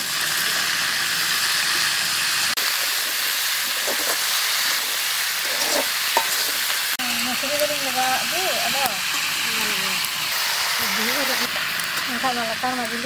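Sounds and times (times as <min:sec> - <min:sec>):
food sizzling in oil: 0:00.0 - 0:13.0
metal spatula scraping pan: 0:03.6 - 0:06.8
woman's voice: 0:07.0 - 0:10.1, 0:10.8 - 0:11.5, 0:12.1 - 0:13.0.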